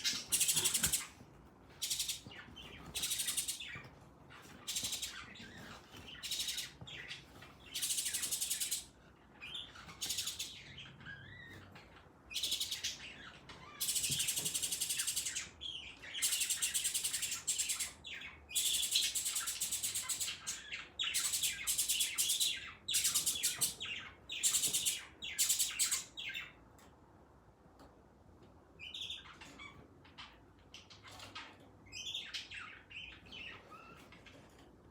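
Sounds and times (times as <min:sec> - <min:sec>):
birds chirping: 0:00.0 - 0:26.6, 0:28.7 - 0:34.9.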